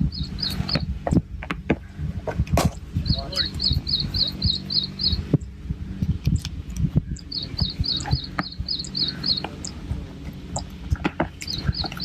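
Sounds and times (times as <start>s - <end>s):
bird chirping high notes: 0.0s - 0.9s, 3.0s - 5.6s, 7.2s - 9.8s, 11.4s - 12.0s
steady low hum: 0.0s - 12.0s.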